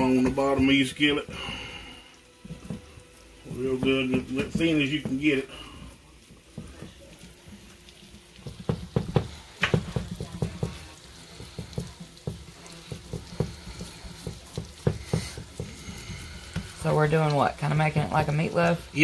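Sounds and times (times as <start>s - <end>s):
small taps and thumps: 2.4s - 3.0s, 6.3s - 7.2s, 7.8s - 16.8s.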